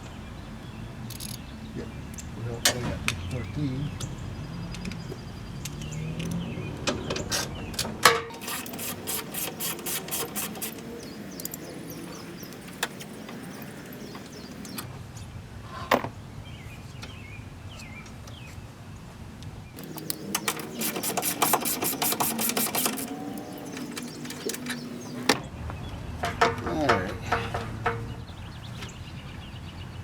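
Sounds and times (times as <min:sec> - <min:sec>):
ratchet wrench clicking: 0:01.1 - 0:01.4, 0:08.4 - 0:14.8, 0:19.8 - 0:25.3
tool knocks: 0:26.2 - 0:28.3.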